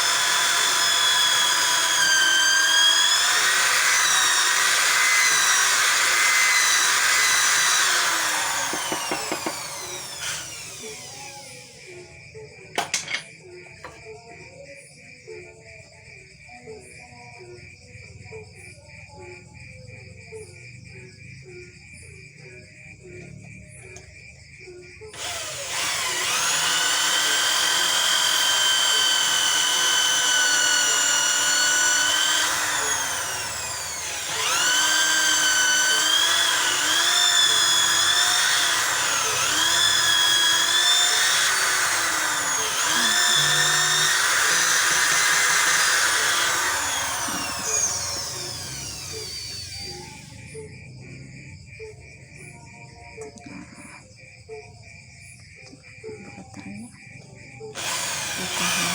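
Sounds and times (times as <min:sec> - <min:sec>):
electric drill whining: 0:00.0 - 0:12.2, 0:25.1 - 0:50.5, 0:57.7 - 0:58.9.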